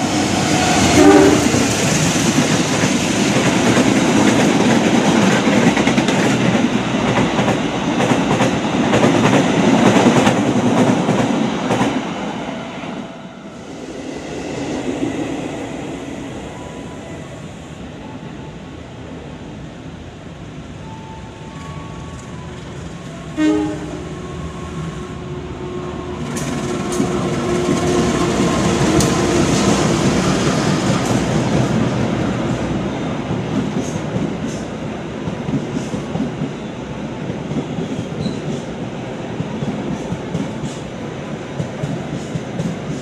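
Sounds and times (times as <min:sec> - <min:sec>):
train rushing past: 0:00.0 - 0:43.0
train horn blast: 0:00.3 - 0:01.7, 0:23.3 - 0:24.2.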